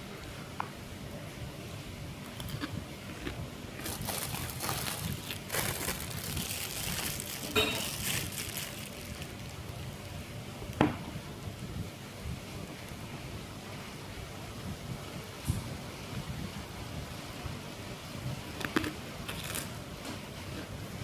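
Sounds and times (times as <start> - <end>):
person chewing crunchy food: 2.3 - 9.4, 18.6 - 20.2.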